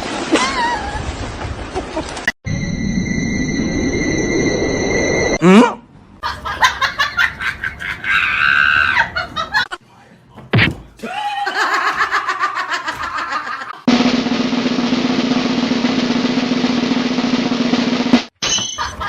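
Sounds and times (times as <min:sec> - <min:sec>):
high rising squeal: 0:02.4 - 0:05.4
people laughing and shrieking: 0:06.2 - 0:09.7, 0:11.1 - 0:13.9.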